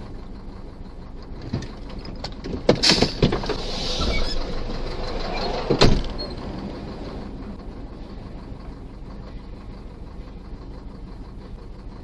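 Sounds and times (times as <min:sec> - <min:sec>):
vehicle running noise: 0:00.0 - 0:12.0
scraping hiss: 0:03.4 - 0:04.7.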